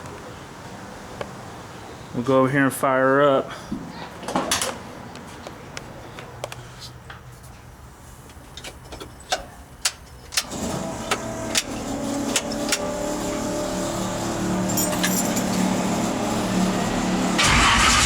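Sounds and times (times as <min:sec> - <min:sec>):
truck steady hum: 0:05.7 - 0:18.0.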